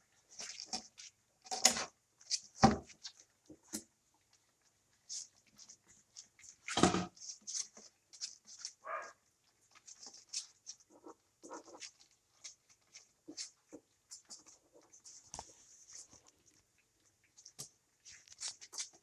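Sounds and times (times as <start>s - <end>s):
puppies chewing meat: 0.2s - 19.0s
thump: 6.8s - 7.1s
puppy whining: 8.8s - 9.1s.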